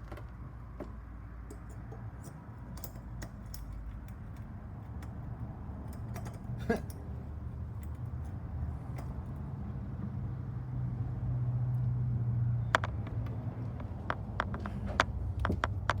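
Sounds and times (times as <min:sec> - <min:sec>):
small objects clicking and tapping: 0:12.7 - 0:16.0.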